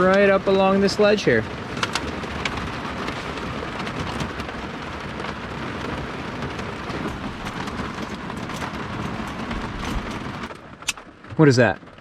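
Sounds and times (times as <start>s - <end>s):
rain on a van roof: 0.0s - 12.0s.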